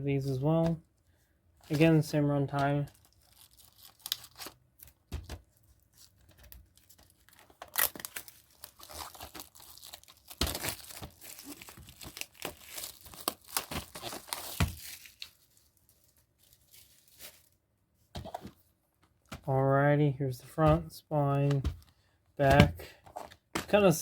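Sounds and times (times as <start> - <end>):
plastic packaging tearing and crinkling: 2.6 - 17.6.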